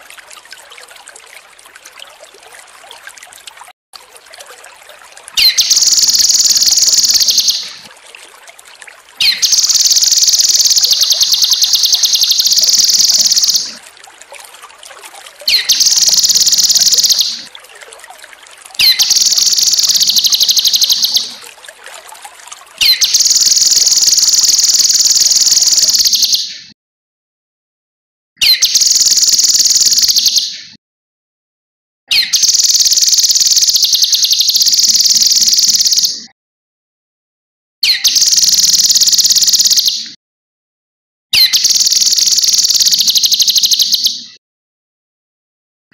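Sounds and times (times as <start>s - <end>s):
faint trickle of water: 0.0s - 26.4s, 28.6s - 30.4s, 32.3s - 36.1s, 38.0s - 39.9s, 41.4s - 44.0s
bird singing fast high trills: 5.4s - 7.8s, 9.2s - 13.8s, 15.5s - 17.5s, 18.8s - 21.4s, 22.8s - 26.4s.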